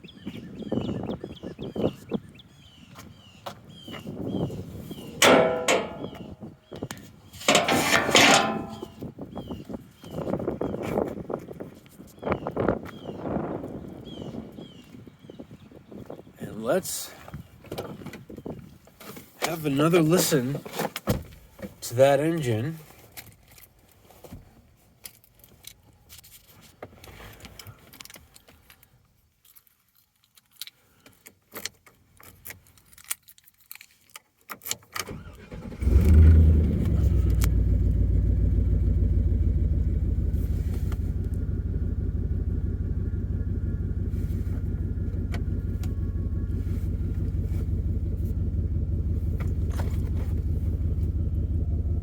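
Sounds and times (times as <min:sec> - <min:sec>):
truck engine starting and idling: 0:07.4 - 0:09.0, 0:35.0 - 0:52.0.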